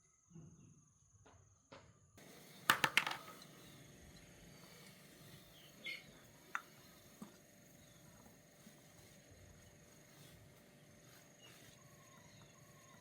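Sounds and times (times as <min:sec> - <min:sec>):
clicks of small hard objects: 0:02.6 - 0:03.7.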